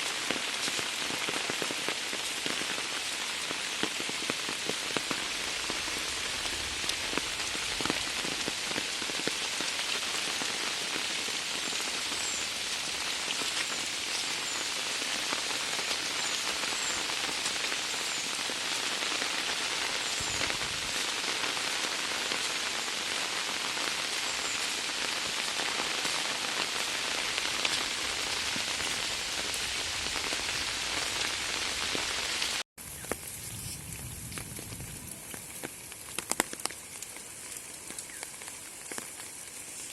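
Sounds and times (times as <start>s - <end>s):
heavy rain pouring: 0.0s - 39.9s
light rain with scattered drops: 0.0s - 39.9s.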